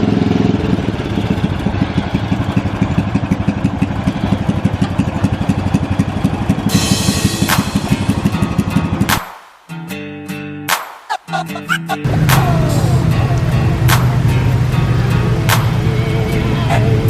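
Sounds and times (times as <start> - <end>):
lawnmower engine running: 0.0 - 9.1, 11.3 - 17.0
hiss: 6.7 - 8.3.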